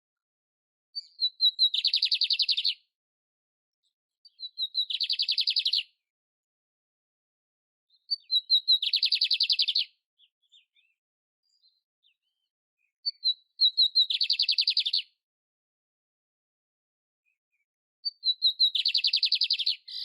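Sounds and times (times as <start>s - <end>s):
canary singing trills: 1.0s - 2.8s, 4.3s - 6.0s, 7.9s - 15.2s, 18.0s - 20.0s.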